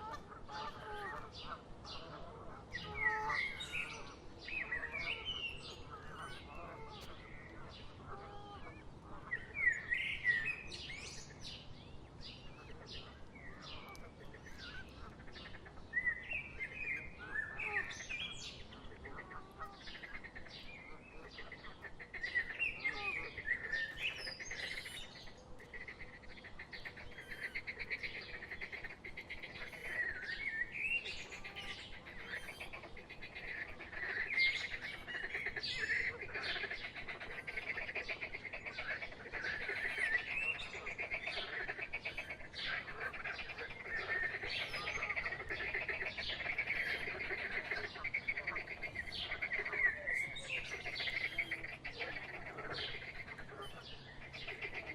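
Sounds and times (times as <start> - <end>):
small birds chirping: 0.0 - 54.9
rapid trilling bird call: 26.7 - 54.9.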